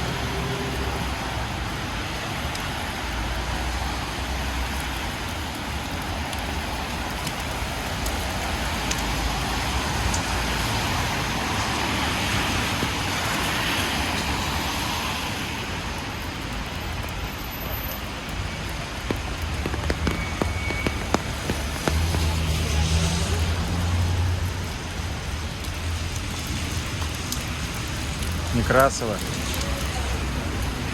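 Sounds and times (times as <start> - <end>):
falling rain: 0.0 - 30.9
tyres hissing on wet road: 0.0 - 30.9
water drips ticking: 18.2 - 29.9.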